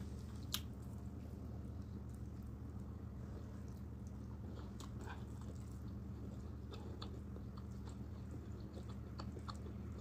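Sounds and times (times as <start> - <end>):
wet chewing smacks: 3.5 - 10.0.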